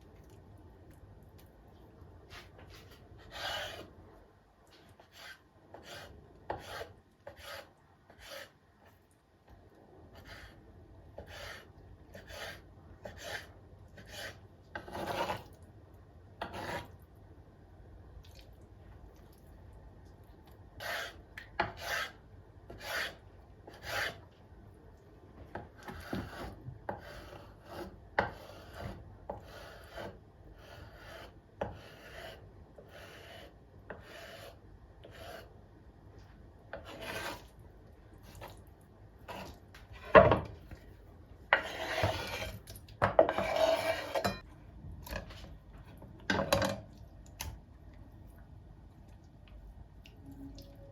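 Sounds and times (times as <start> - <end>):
rasping scraping strokes: 41.5 - 42.6, 43.3 - 44.4.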